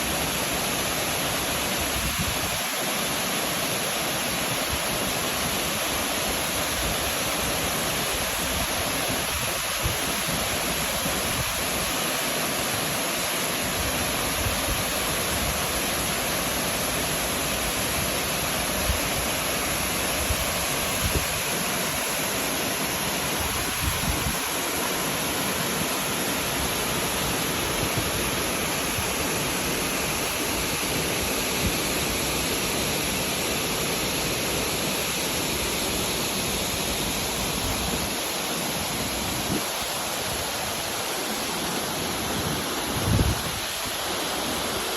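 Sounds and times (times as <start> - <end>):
heavy rain: 16.8 - 44.9.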